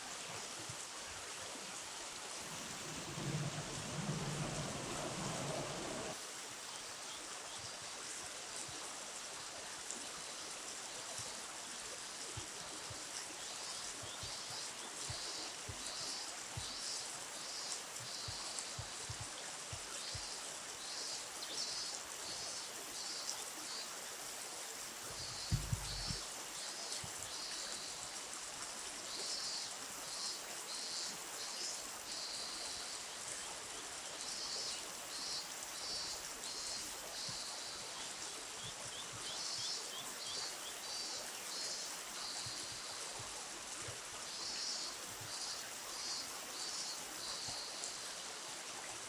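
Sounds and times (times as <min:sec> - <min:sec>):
flowing river water: 0:00.0 - 0:49.0
low thump: 0:25.5 - 0:26.2.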